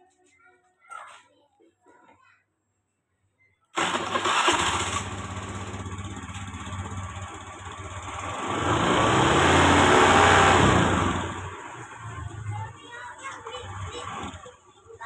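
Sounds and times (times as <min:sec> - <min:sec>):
engine idling and revving: 0:03.8 - 0:15.0.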